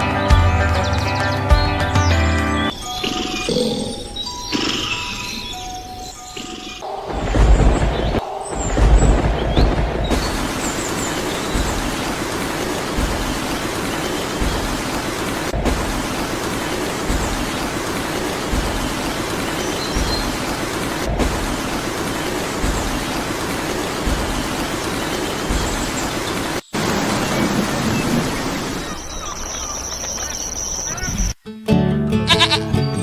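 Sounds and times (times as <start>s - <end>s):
low thump: 7.1s - 10.8s, 13.0s - 13.5s, 21.1s - 21.7s
steady rain-like hiss: 7.1s - 31.1s.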